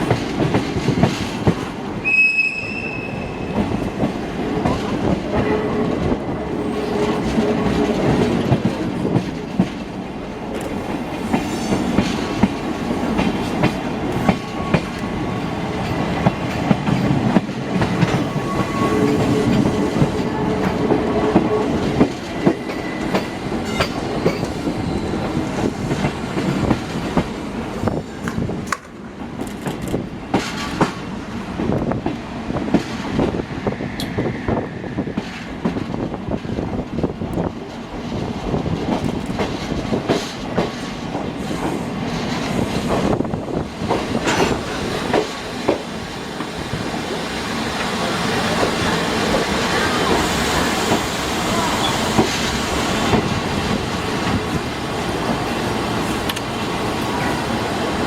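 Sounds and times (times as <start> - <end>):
train rumbling inside carriage: 0.0 - 58.0
wheels clacking over rail joints: 42.1 - 46.6.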